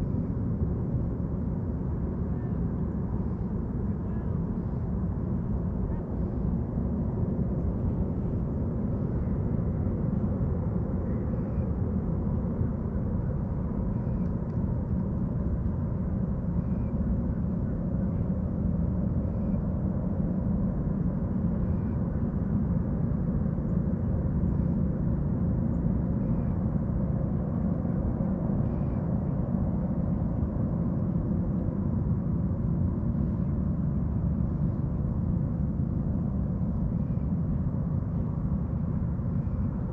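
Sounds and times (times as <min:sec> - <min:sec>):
low waterfront rumble: 0:00.0 - 0:39.9
faint bird chirp: 0:11.0 - 0:11.7, 0:13.8 - 0:14.3, 0:16.5 - 0:17.0, 0:19.2 - 0:19.6, 0:28.6 - 0:29.1.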